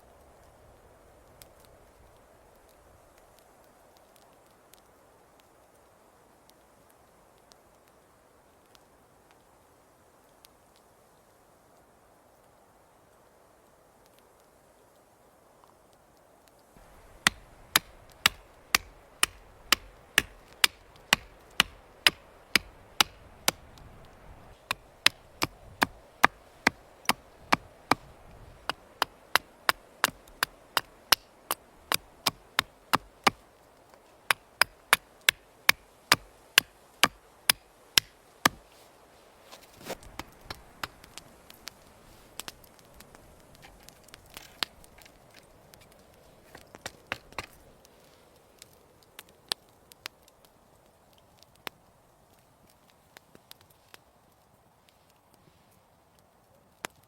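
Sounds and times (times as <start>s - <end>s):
wood being chopped: 16.8s - 23.9s, 24.6s - 33.4s, 34.3s - 38.7s, 39.5s - 41.3s, 46.5s - 47.6s
light irregular knocks: 16.8s - 38.9s.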